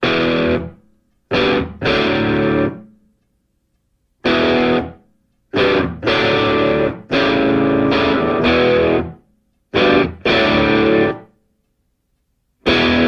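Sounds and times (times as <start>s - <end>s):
distorted electric guitar chords: 0.0s - 2.8s, 4.2s - 11.3s, 12.6s - 13.0s.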